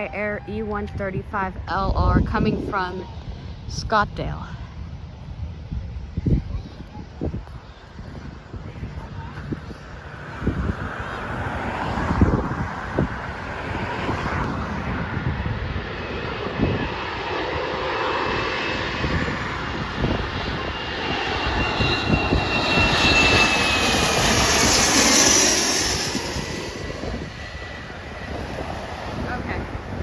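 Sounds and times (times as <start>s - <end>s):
jet engines passing by: 0.0s - 30.0s
wind buffeting microphone: 0.0s - 30.0s
high whine sliding down in pitch: 18.8s - 28.1s.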